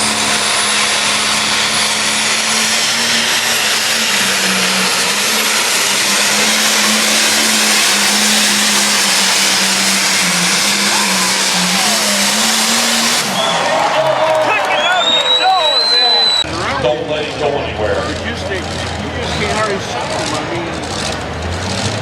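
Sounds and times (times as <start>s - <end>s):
diesel engine at full throttle: 0.0s - 22.0s
thin high whistle: 14.7s - 16.5s.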